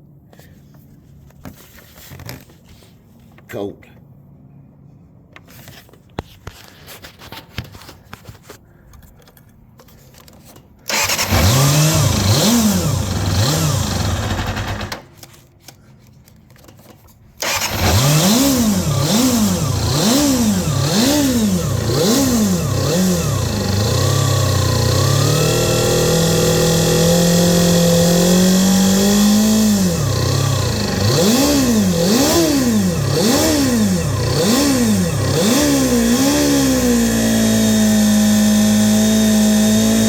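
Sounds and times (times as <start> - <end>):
motorcycle engine revving: 10.9 - 15.1, 17.4 - 40.0.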